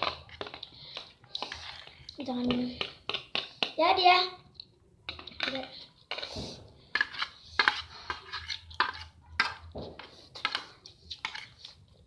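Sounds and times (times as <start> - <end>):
cutlery scraping against plates: 0.0 - 2.1, 5.1 - 11.8.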